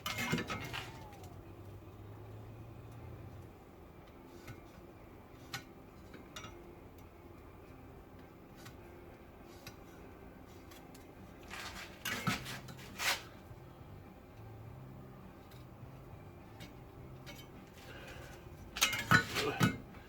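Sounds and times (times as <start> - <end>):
metallic clattering and scraping: 0.0 - 1.8, 8.5 - 13.5, 16.4 - 20.0.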